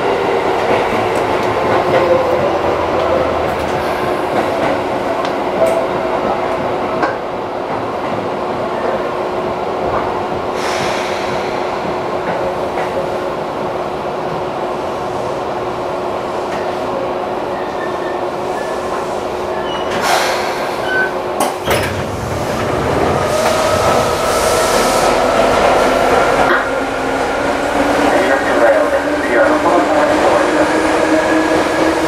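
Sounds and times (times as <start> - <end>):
train running rumble: 9.2 - 32.0.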